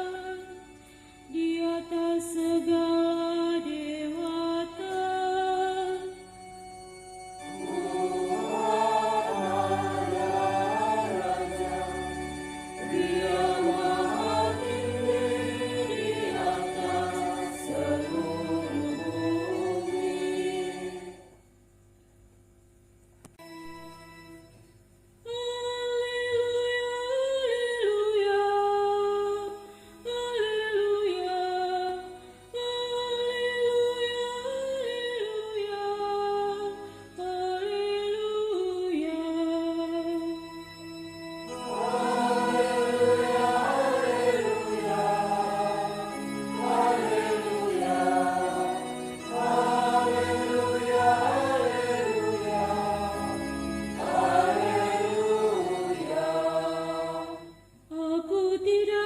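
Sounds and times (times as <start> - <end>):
church choir singing a hymn: 7.4 - 21.4, 41.5 - 57.6.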